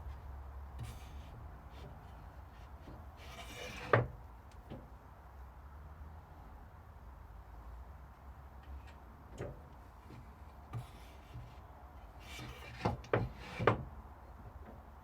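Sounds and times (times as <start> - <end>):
wood scraping: 0.8 - 4.1, 12.2 - 13.8.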